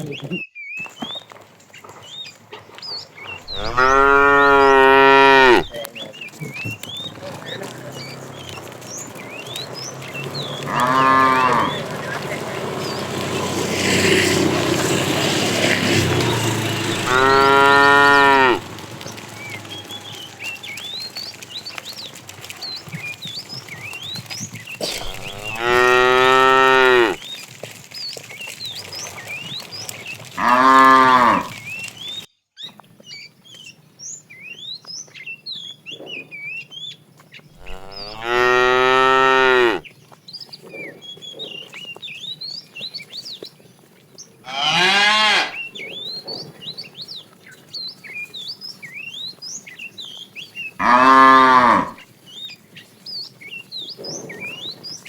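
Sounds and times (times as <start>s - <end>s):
cattle mooing: 3.4s - 5.8s, 6.5s - 22.6s, 24.8s - 27.2s, 30.4s - 31.6s, 37.6s - 39.8s, 44.5s - 45.6s, 50.8s - 52.0s.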